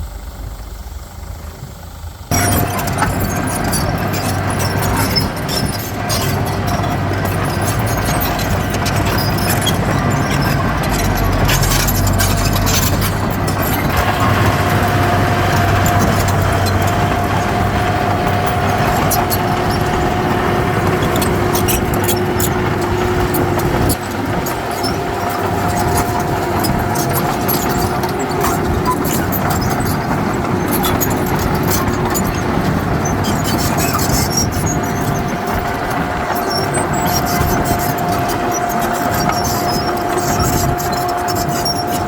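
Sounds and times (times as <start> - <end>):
steady high whine: 0.0 - 31.3
diesel engine under load: 0.0 - 42.0
metallic clanks: 2.3 - 42.0.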